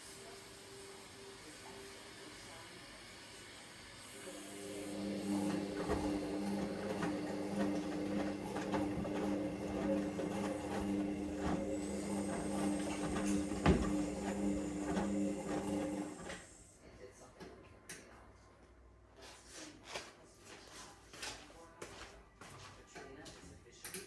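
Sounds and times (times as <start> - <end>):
washing machine motor humming: 3.8 - 16.5
laundry tumbling knocks: 5.5 - 16.1.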